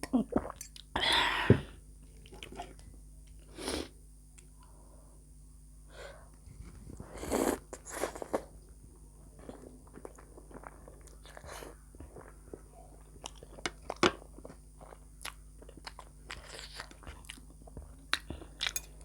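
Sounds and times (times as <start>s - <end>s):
chewing and biting: 13.2s - 18.8s.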